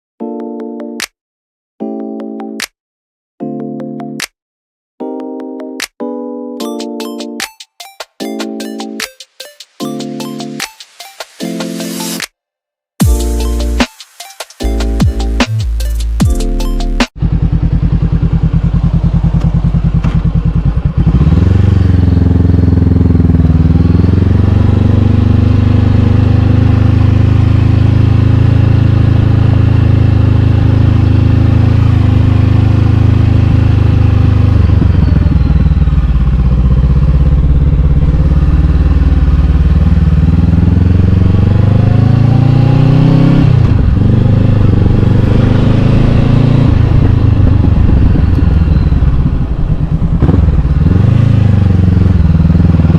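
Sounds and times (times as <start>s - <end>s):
motorcycle engine revving under load: 17.2s - 52.9s.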